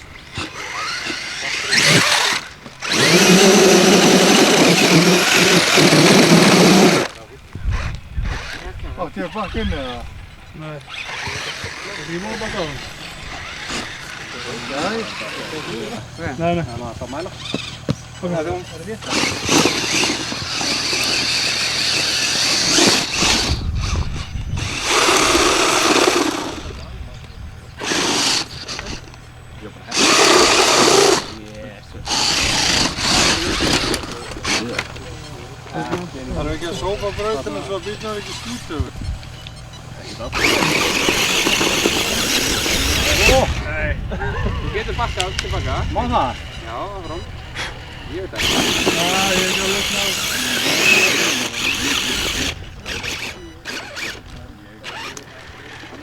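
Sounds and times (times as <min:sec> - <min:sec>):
model car motor whining: 0:00.0 - 0:56.0
wheels churning over dirt: 0:00.0 - 0:56.0
low rumble: 0:42.4 - 0:48.3.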